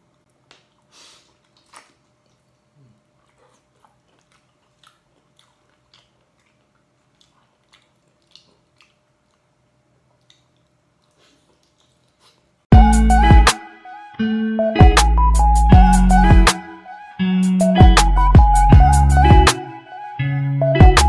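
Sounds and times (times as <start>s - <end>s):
close-up chewing and biting: 0.0s - 12.6s.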